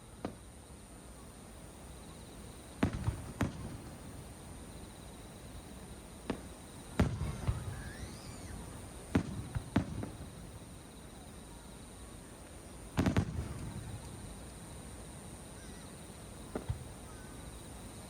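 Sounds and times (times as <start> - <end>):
insects droning: 0.0 - 18.0
firework bangs with echo: 2.8 - 4.2, 6.3 - 10.6, 13.0 - 14.1, 16.5 - 17.0.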